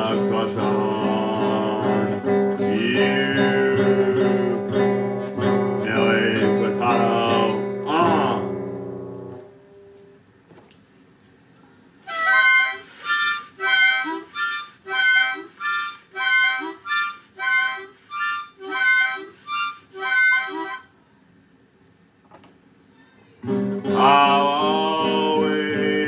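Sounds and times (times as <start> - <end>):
harmonica playing: 12.0 - 20.9.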